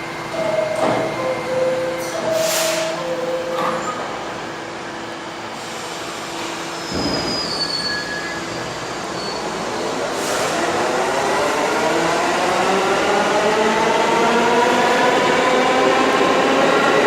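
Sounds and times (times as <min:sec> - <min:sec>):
two-tone door chime: 0:00.3 - 0:04.0
high-pitched train squeals: 0:00.4 - 0:04.1, 0:06.7 - 0:09.8
train doors closing with thump: 0:00.5 - 0:04.2, 0:06.4 - 0:07.6.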